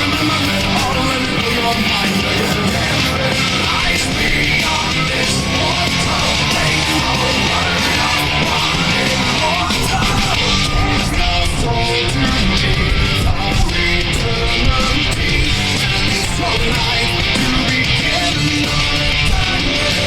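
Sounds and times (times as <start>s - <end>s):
electric guitar: 0.0s - 20.0s
live rock music: 0.0s - 20.0s
person yelling vocals: 3.7s - 12.8s.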